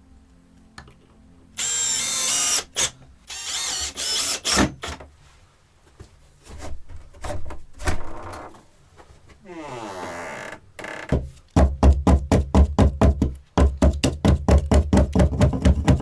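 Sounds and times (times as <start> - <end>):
power drill running: 1.6 - 5.0.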